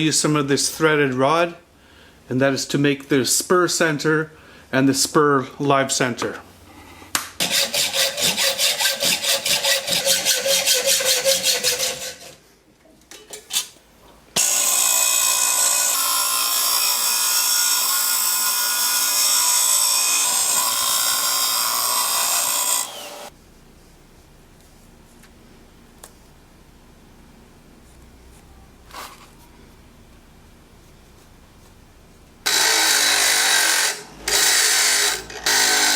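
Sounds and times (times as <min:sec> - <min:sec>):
hand saw cutting steel rod: 0:07.4 - 0:12.4, 0:14.4 - 0:23.3, 0:32.5 - 0:35.9
power tool running: 0:14.4 - 0:23.3, 0:32.5 - 0:35.9.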